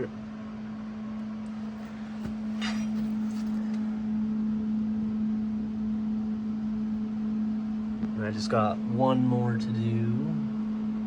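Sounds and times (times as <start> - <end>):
low machine hum: 0.0 - 11.0
scraping clink: 1.5 - 3.8.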